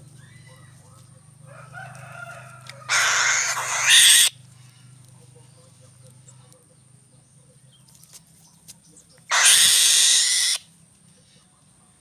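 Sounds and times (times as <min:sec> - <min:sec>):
bird harsh call: 0:02.9 - 0:04.4, 0:09.3 - 0:10.6.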